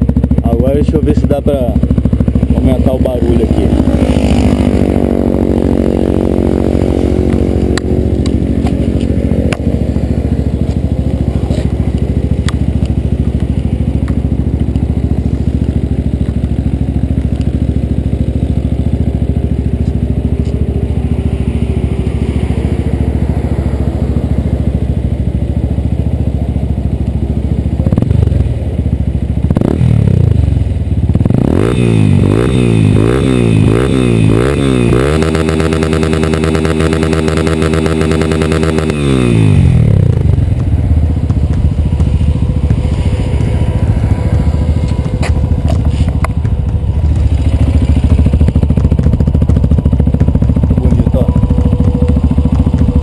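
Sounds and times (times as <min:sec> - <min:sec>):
motorcycle engine idling and revving: 0:00.0 - 0:53.0.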